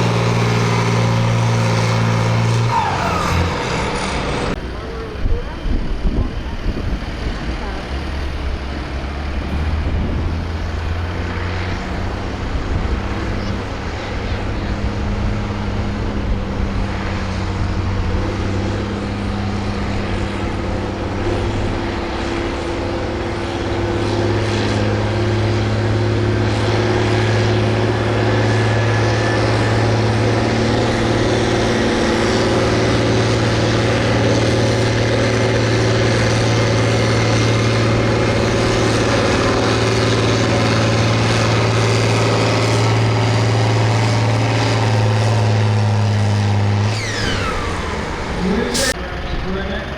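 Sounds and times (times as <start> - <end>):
tractor engine running under load: 0.0 - 49.9.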